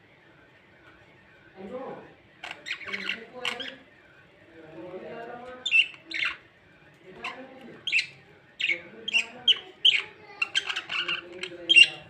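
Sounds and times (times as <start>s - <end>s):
budgerigar chirping and squawking: 2.4s - 3.8s, 5.6s - 6.5s, 7.2s - 12.0s.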